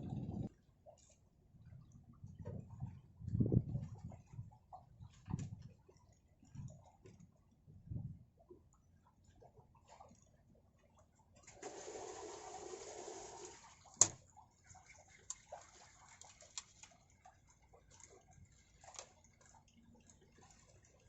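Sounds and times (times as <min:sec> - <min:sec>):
water splashing: 0:09.2 - 0:21.0
faint small clicks: 0:16.2 - 0:17.0.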